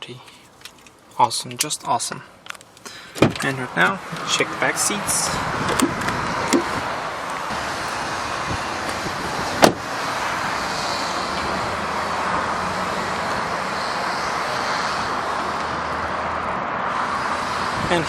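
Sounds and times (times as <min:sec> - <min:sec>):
vehicle noise: 0:00.0 - 0:18.0
car door shutting: 0:03.1 - 0:03.5, 0:05.6 - 0:08.1, 0:08.8 - 0:09.9.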